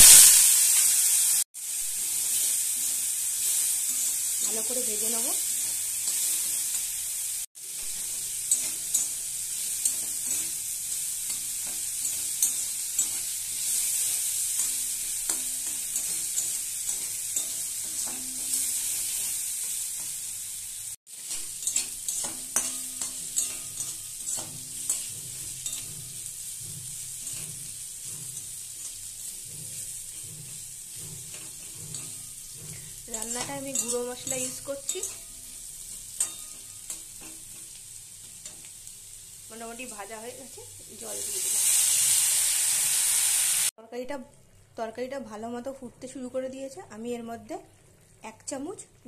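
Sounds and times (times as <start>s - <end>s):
potatoes sizzling in hot oil: 0.0s - 43.7s, 44.6s - 49.0s
spatula scraping and knocking pan: 7.7s - 20.2s, 21.1s - 38.8s.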